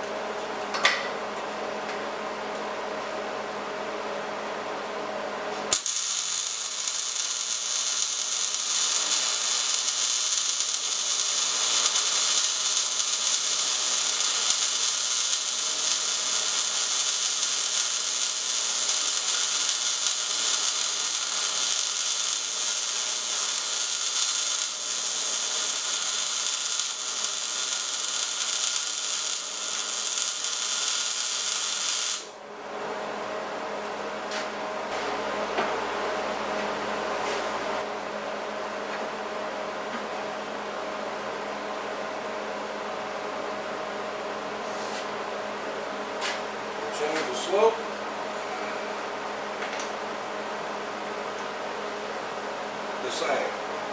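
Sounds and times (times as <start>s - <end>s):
welding arc crackling: 5.7s - 32.4s.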